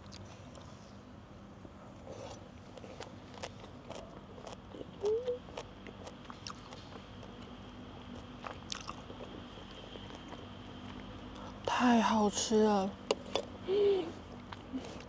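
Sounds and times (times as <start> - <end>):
person chewing crunchy food: 2.0 - 11.6.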